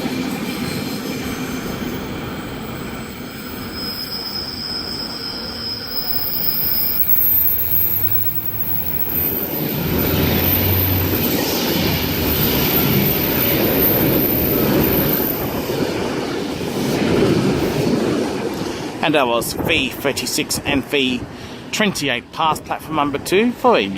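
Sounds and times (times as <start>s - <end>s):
train wheels rumbling and rattling: 0.0s - 23.5s
high whine: 1.3s - 17.2s.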